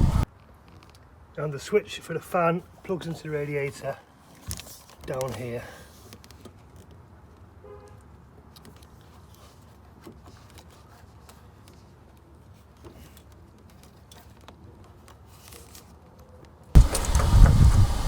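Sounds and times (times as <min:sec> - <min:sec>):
low steady background rumble: 0:00.0 - 0:00.3, 0:16.8 - 0:18.0.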